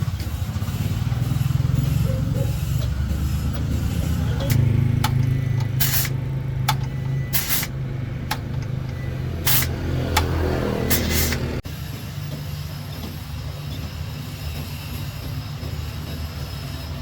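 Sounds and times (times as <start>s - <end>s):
truck engine running: 0.0s - 17.0s
air hisses: 5.7s - 6.2s, 7.3s - 7.8s, 9.4s - 9.8s, 10.8s - 11.6s.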